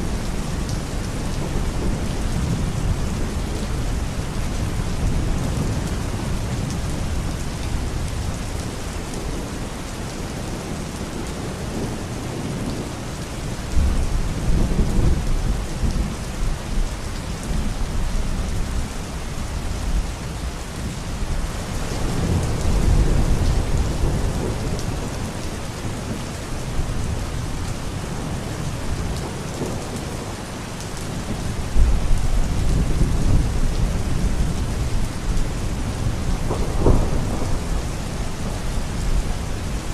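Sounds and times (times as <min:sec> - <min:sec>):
steady rain hiss: 0:00.0 - 0:39.9
thunder rumbling: 0:31.2 - 0:39.9.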